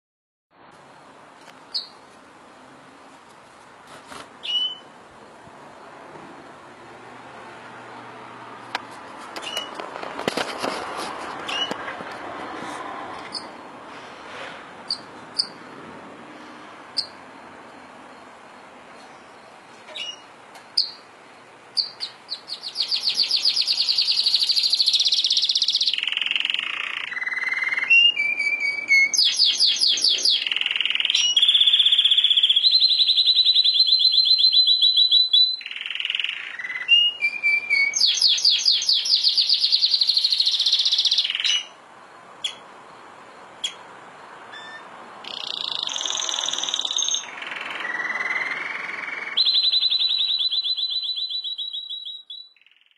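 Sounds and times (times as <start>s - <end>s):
canary singing trills: 1.7s - 2.0s, 4.4s - 5.0s, 11.4s - 11.8s, 13.2s - 13.6s, 14.8s - 15.7s, 16.9s - 18.4s, 19.0s - 41.8s, 42.4s - 43.0s, 43.6s - 43.8s, 44.5s - 52.9s.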